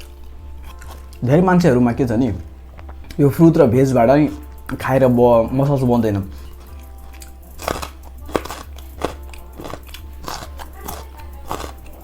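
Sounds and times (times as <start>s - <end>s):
person chewing crisp fruit: 0.0s - 12.0s.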